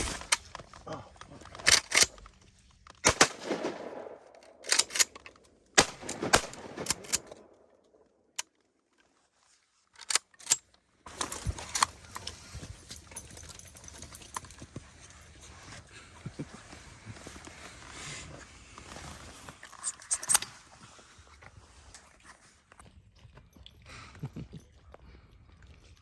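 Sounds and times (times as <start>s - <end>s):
outdoor background noise: 0.0s - 26.0s
shotgun blasts: 3.1s - 4.6s, 5.8s - 7.5s.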